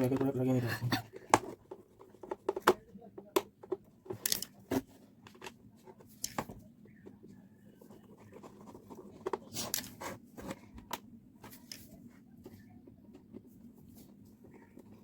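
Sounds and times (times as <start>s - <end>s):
faint low hum: 0.0s - 15.0s
clicks of parts being handled: 4.1s - 4.6s.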